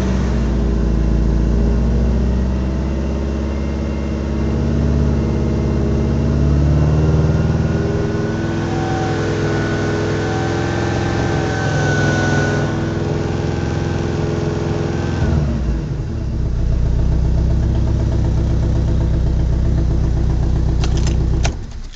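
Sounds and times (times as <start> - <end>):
car engine revving and idling: 0.0 - 21.9.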